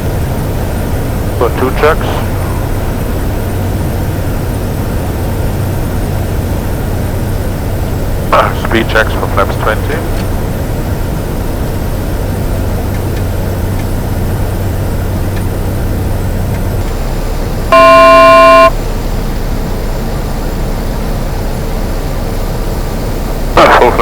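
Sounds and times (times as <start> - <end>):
aircraft cockpit noise: 0.0 - 24.0
low hum: 14.5 - 19.3
electronic alert tone: 17.7 - 18.7.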